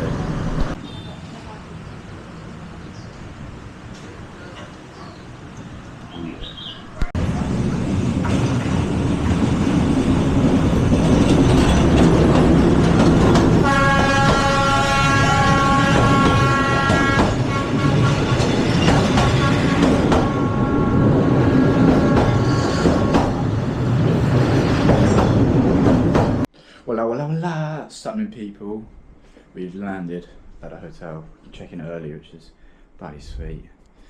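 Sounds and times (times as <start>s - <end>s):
train rumbling and rattling: 0.0s - 0.8s, 7.0s - 26.5s
train horn chord: 13.6s - 18.5s, 19.1s - 23.4s.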